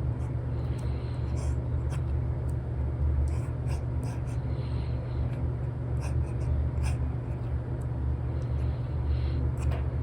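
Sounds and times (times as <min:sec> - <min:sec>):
steady low hum: 0:00.0 - 0:10.0
stylus scratching on screen: 0:03.3 - 0:04.4, 0:06.0 - 0:07.5.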